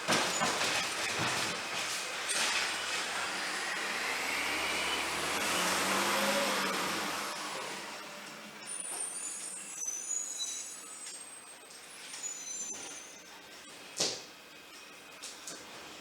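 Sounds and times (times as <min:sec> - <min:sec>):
road vehicle passing by: 0:02.1 - 0:08.7.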